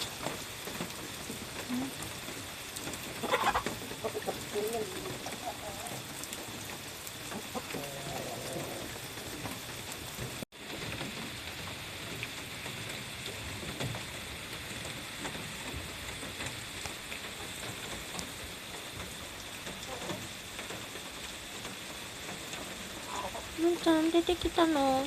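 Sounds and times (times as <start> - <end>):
rain pattering: 0.0 - 25.0
hen calling: 3.2 - 6.2, 23.0 - 23.6.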